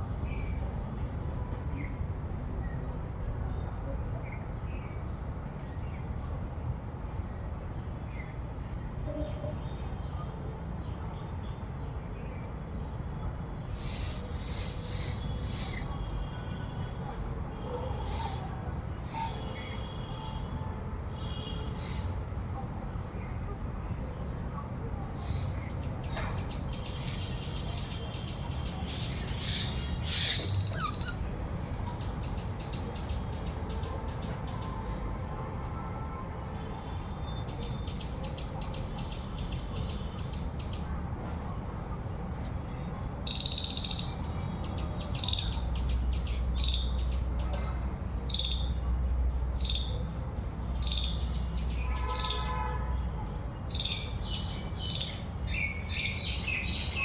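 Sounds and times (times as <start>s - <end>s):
high-pitched insect chorus: 0.0s - 57.0s
bird chirps: 29.0s - 31.3s, 43.3s - 44.2s.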